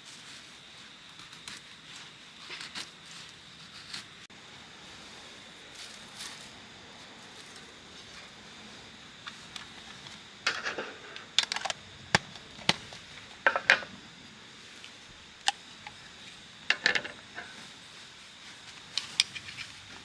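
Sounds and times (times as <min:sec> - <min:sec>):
small objects clicking and scraping: 0:09.2 - 0:13.9, 0:16.7 - 0:17.6.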